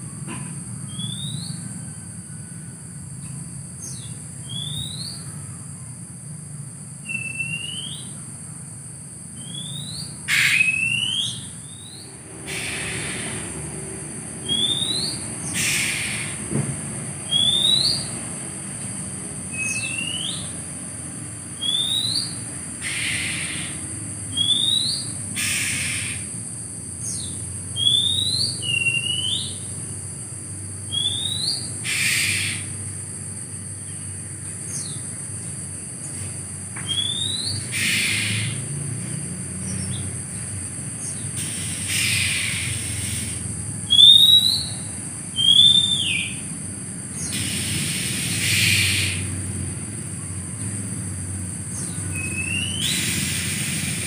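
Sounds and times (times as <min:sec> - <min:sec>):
bird rising whistle: 0:00.9 - 0:02.6, 0:03.9 - 0:05.4, 0:07.0 - 0:08.2, 0:09.4 - 0:13.8, 0:14.4 - 0:16.4, 0:17.2 - 0:18.1, 0:19.5 - 0:20.6, 0:21.6 - 0:26.2, 0:27.8 - 0:29.6, 0:30.9 - 0:32.7, 0:36.8 - 0:38.6, 0:41.4 - 0:46.4, 0:52.1 - 0:54.0
brief hissing bursts: 0:41.4 - 0:43.4, 0:47.3 - 0:49.1, 0:52.8 - 0:54.0.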